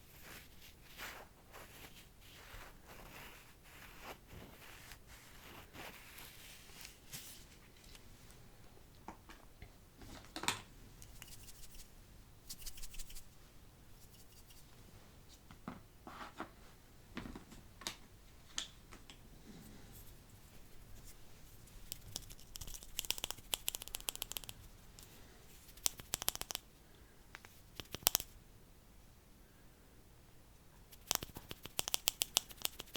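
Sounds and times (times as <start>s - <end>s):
wet mouth clicks and smacks: 21.8s - 24.6s, 30.9s - 32.9s.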